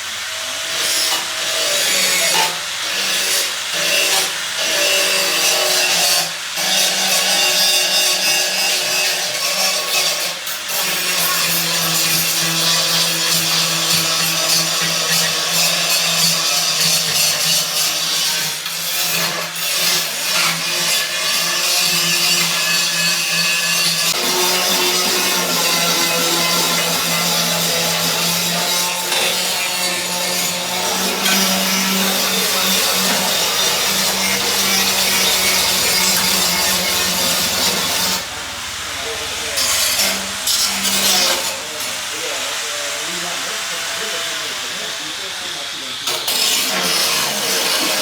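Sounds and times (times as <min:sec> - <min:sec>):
wood being sawn: 0:00.0 - 0:48.0
wood rasping: 0:09.3 - 0:43.0
power tool motor hum: 0:11.3 - 0:48.0.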